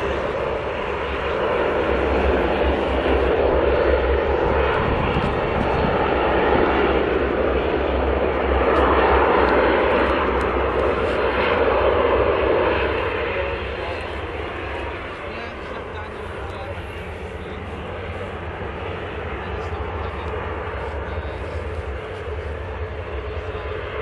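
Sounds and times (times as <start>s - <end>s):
turboprop engines droning: 0.0s - 24.0s.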